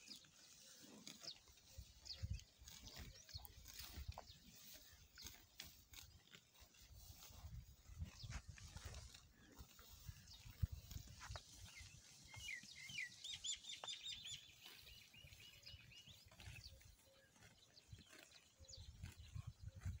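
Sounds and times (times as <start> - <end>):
small bird chirping: 9.8 - 20.0.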